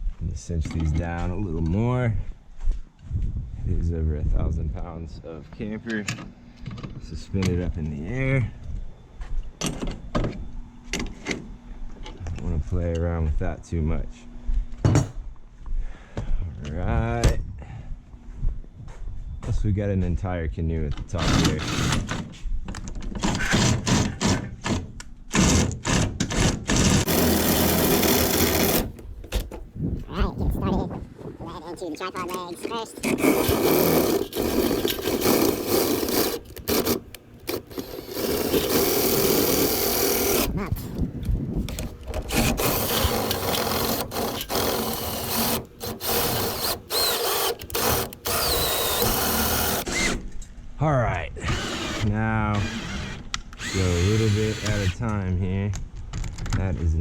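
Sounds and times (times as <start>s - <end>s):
cordless drill whirring: 23.2s - 29.5s, 33.0s - 41.1s, 41.7s - 50.2s, 51.4s - 55.0s.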